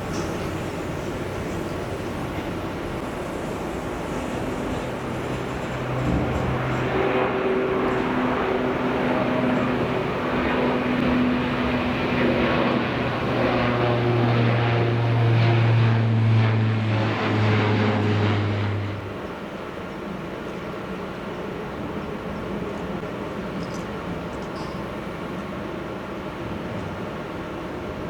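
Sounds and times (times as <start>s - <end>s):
engine rush: 0.0s - 19.4s
propeller drone: 0.0s - 28.0s.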